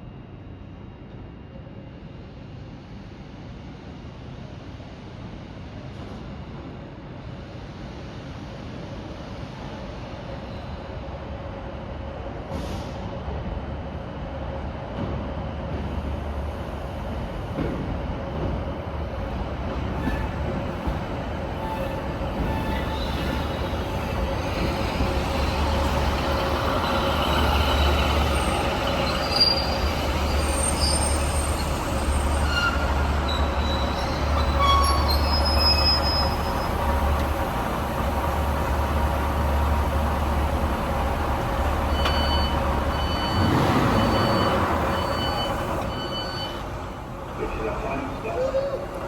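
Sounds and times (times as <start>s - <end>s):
train low rumble: 0.0s - 49.0s
train wheel squeals: 20.0s - 20.9s, 21.5s - 37.2s, 41.9s - 46.7s.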